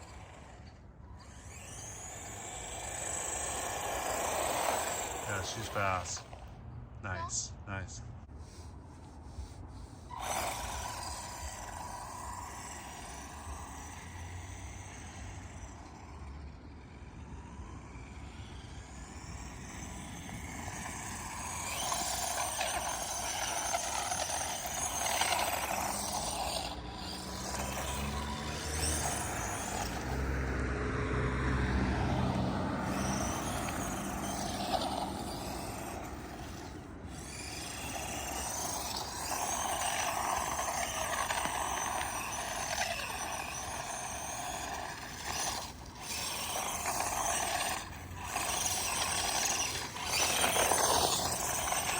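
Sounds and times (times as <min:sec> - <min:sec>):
electric motor whining: 0:00.0 - 0:06.6, 0:08.5 - 0:51.9.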